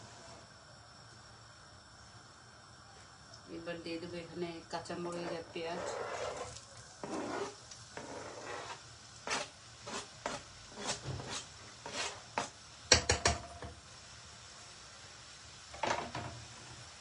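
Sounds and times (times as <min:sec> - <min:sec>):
utensils knocking against cookware: 0:12.9 - 0:13.7.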